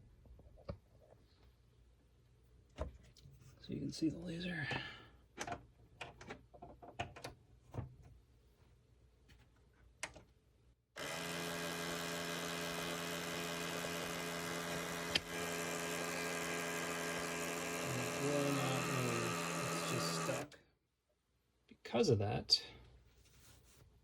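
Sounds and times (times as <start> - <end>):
motor whirring hum: 11.0 - 20.6.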